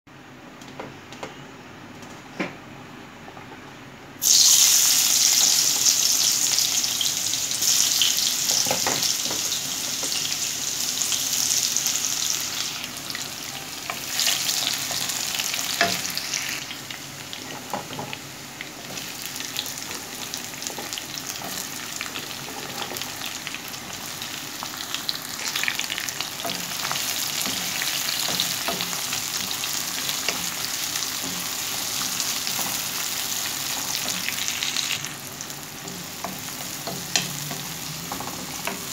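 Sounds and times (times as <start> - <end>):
garlic sizzling in hot oil: 4.2 - 38.9
wooden spoon stirring and tapping: 35.8 - 38.9.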